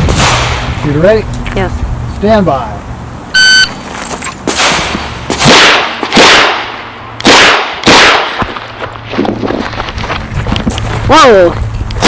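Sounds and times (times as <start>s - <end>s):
shot timer beep: 3.4s - 3.8s.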